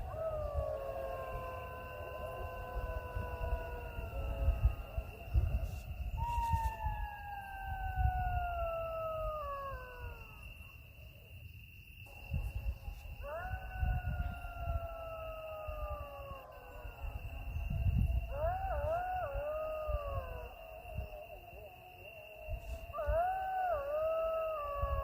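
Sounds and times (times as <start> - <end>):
jackals howling: 0.0 - 10.8, 12.1 - 25.0
high insect trill: 0.0 - 25.0.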